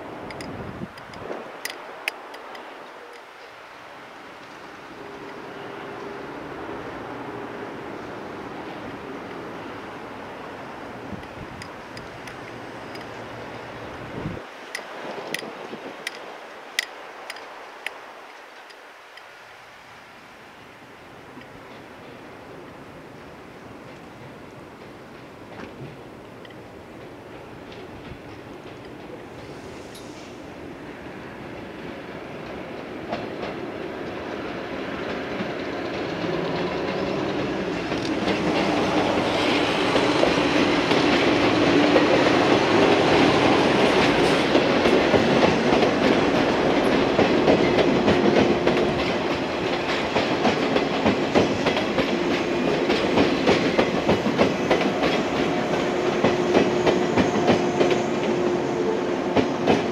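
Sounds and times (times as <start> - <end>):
electric train passing: 0.0 - 59.9
wheels clattering over rail joints: 8.7 - 19.3, 23.8 - 29.6, 31.6 - 58.4.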